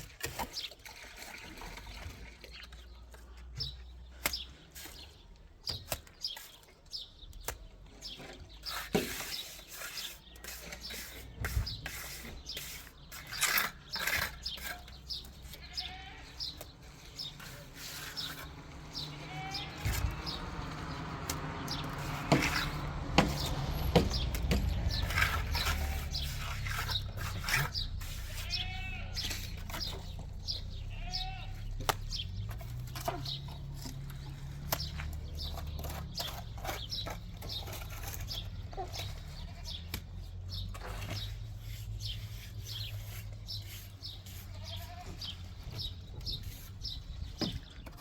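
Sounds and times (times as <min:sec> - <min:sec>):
sheep and goats bleating: 0:15.6 - 0:16.6, 0:18.9 - 0:19.8, 0:28.0 - 0:30.0, 0:30.6 - 0:31.8, 0:44.3 - 0:45.4.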